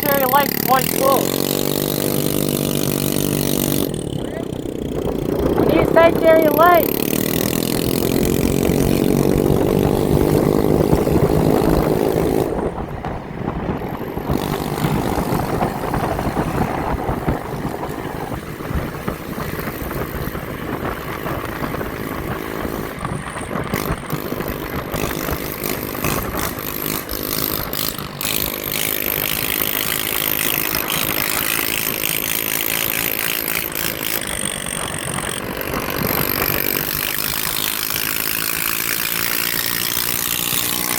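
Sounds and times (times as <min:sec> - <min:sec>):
motorbike engine revving: 0:00.0 - 0:40.9
motorbike engines droning: 0:00.0 - 0:40.9
steady rushing noise: 0:00.0 - 0:40.9.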